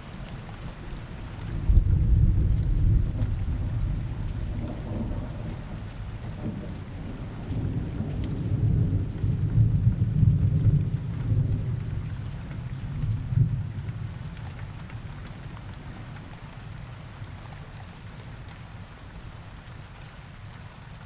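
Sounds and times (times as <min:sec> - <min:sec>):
steady rain: 0:00.0 - 0:21.0
low rolling thunder: 0:01.4 - 0:14.2.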